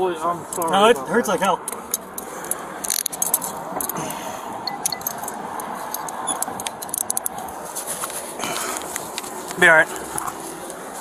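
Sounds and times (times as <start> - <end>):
light metallic clicks and jangles: 0.5 - 7.5
rustling: 7.2 - 11.0.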